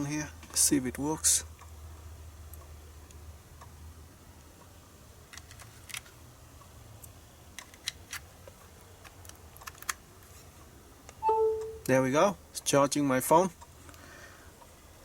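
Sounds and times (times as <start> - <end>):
plug and plastic cases clicking: 9.0 - 10.0.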